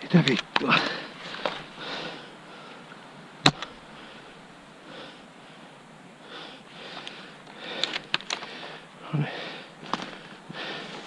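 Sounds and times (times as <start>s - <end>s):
soft breathy puffs: 0.6s - 11.0s.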